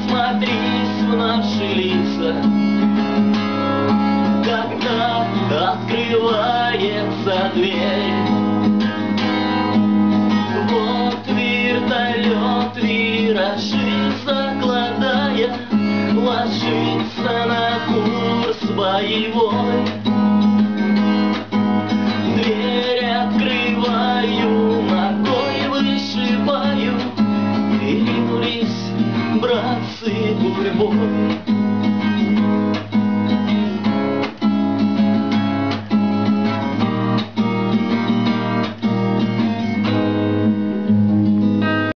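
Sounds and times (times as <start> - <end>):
person singing: 0.0 - 2.5, 4.3 - 8.4, 10.4 - 20.1, 22.2 - 31.4
acoustic guitar strumming: 0.0 - 42.0.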